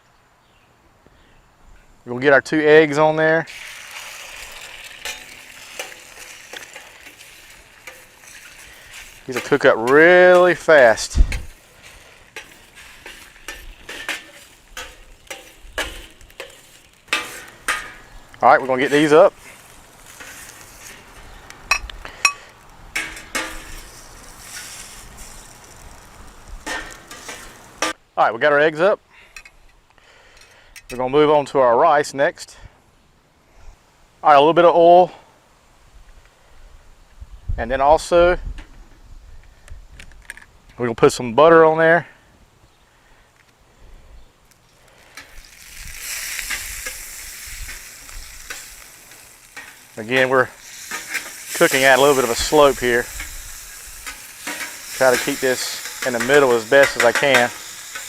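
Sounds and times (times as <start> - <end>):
faint sizzle: 2.7 - 28.0, 43.8 - 58.0
utensil scraping griddle pan: 3.5 - 28.0, 44.8 - 58.0.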